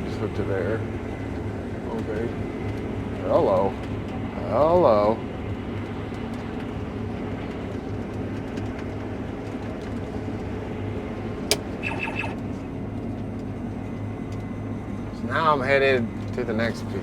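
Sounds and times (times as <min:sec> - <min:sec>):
combine engine drone: 0:00.0 - 0:17.0
brief high beep: 0:11.8 - 0:12.4.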